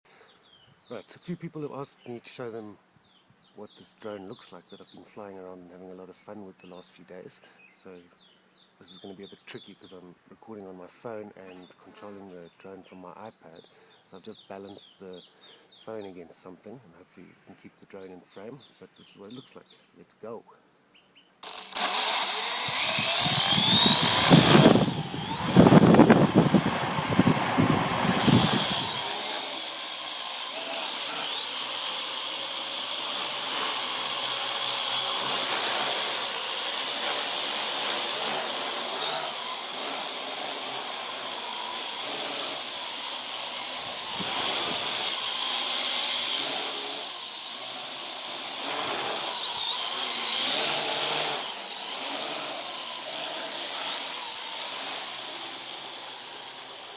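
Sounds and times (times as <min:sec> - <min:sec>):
drone propellers whining: 0:21.4 - 0:56.9
rotor downwash buffeting microphone: 0:22.7 - 0:29.3.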